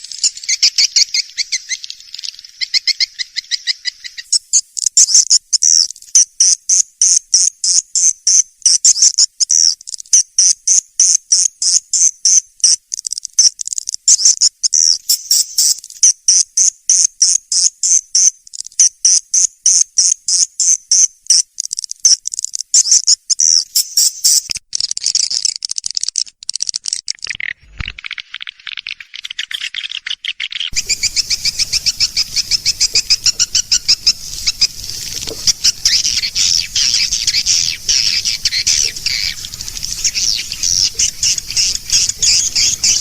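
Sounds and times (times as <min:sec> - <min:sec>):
swiftlets chirping and twittering: 0:14.2 - 0:15.8, 0:22.4 - 0:25.3, 0:29.0 - 0:43.0.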